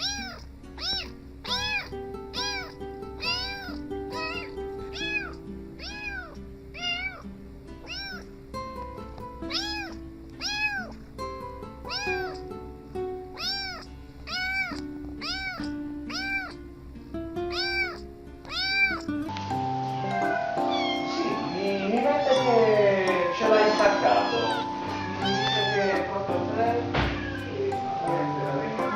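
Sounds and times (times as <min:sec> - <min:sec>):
kittens meowing: 0:00.0 - 0:08.3, 0:09.5 - 0:11.0, 0:11.8 - 0:12.5, 0:13.3 - 0:16.6, 0:17.5 - 0:19.2, 0:20.2 - 0:26.1, 0:27.0 - 0:27.8
background music: 0:17.4 - 0:28.9.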